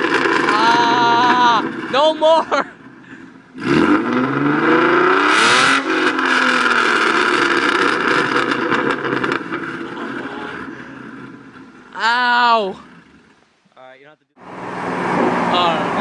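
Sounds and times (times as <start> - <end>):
car engine revving loud: 3.5 - 11.6.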